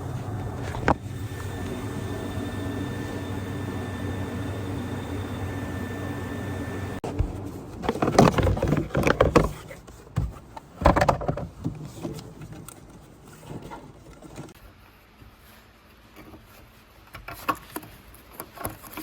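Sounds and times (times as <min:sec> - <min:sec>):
mechanical hum with faint whine: 0:00.0 - 0:14.5.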